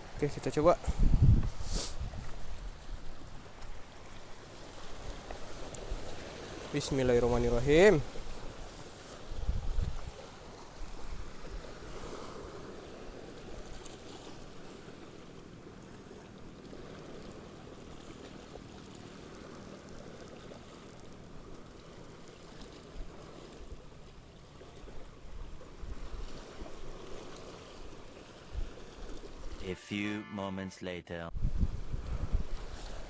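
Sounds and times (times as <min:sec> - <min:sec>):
seawater lapping: 0:00.0 - 0:29.7, 0:32.0 - 0:33.0
wind buffeting microphone: 0:00.8 - 0:03.6, 0:09.2 - 0:10.2, 0:31.3 - 0:33.0.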